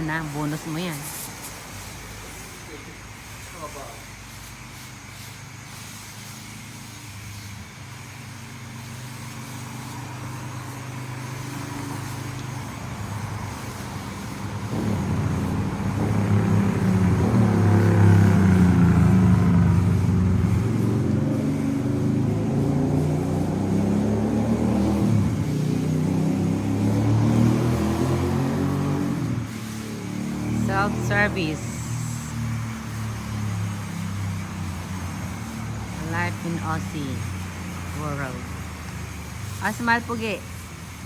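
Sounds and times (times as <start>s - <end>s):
low motor hum: 11.0s - 38.6s.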